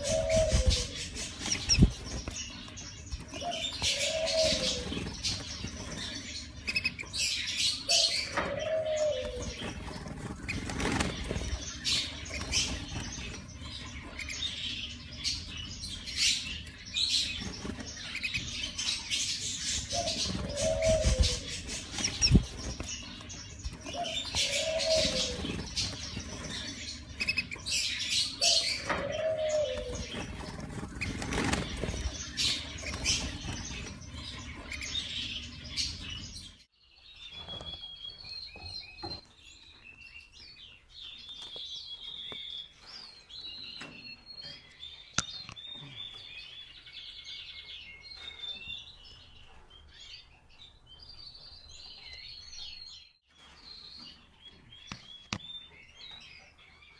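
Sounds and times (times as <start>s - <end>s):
wing flapping and scuffling: 0.0s - 7.0s, 7.9s - 14.2s, 19.7s - 34.8s
birds chirping and twittering: 0.0s - 56.9s.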